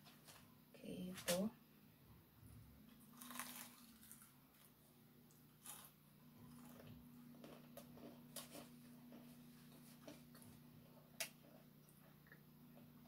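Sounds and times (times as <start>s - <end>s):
chewing crispy food: 3.0s - 13.0s.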